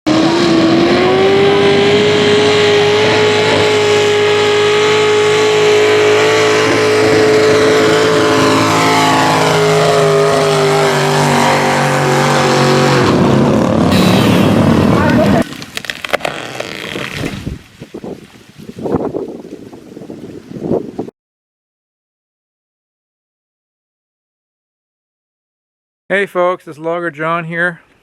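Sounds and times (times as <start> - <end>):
chainsaw engine at high revs: 0.1 - 15.4.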